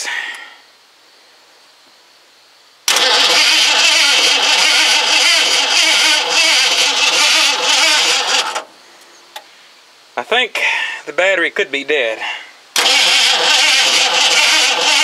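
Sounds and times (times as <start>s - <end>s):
starter motor cranking engine: 2.9s - 8.7s, 12.8s - 15.0s.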